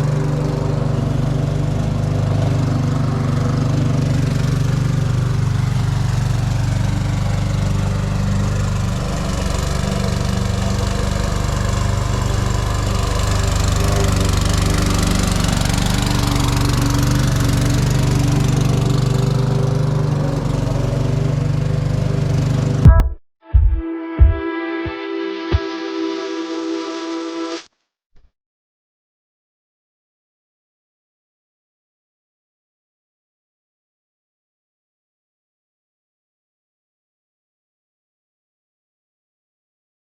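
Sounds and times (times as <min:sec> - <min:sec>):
lawn mower engine running: 0:00.0 - 0:23.0.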